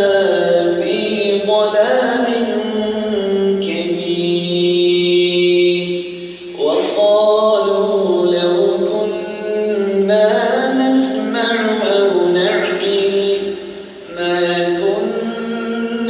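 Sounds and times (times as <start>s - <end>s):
man reciting melodically: 0.0s - 16.0s.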